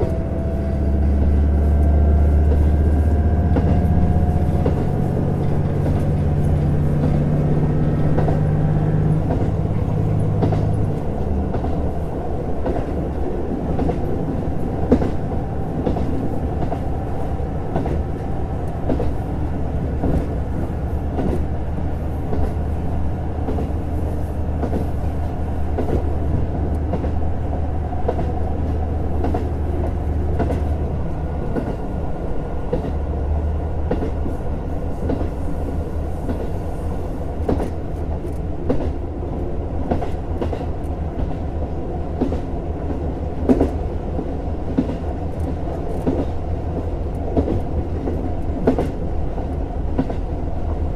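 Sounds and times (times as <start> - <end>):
diesel railcar engine: 0.0 - 50.9
railcar rolling rumble: 0.0 - 50.9
wheels clicking over rail joints: 2.4 - 19.3.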